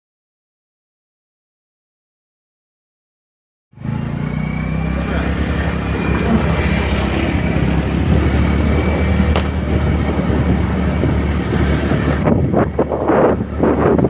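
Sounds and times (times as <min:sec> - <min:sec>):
scooter engine hum: 0:03.8 - 0:14.0
wind rushing over microphone: 0:05.7 - 0:14.0.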